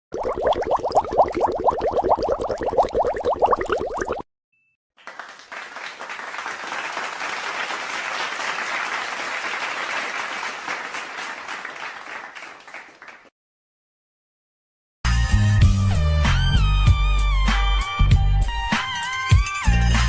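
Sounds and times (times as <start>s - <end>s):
crowd applause: 5.0s - 13.3s.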